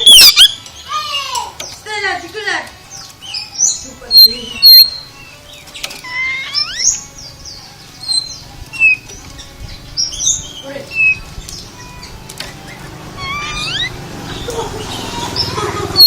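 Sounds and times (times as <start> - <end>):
bird singing varied whistles: 0.0 - 0.6, 3.3 - 5.4, 6.0 - 7.1, 12.7 - 14.0.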